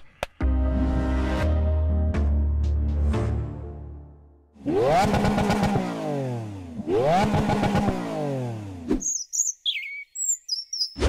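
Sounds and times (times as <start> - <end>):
car engine revving: 4.6 - 9.0.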